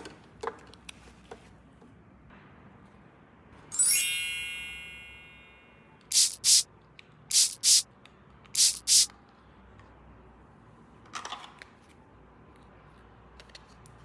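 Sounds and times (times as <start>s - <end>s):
bright chime ringing: 3.7s - 5.9s
sharp hissing swishes: 6.1s - 6.6s, 7.3s - 7.8s, 8.6s - 9.1s.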